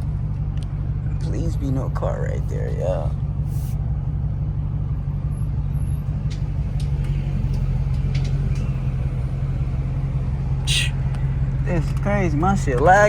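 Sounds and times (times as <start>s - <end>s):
car engine droning: 0.0s - 13.0s
man talking: 1.2s - 3.1s, 10.7s - 11.0s, 11.6s - 13.0s.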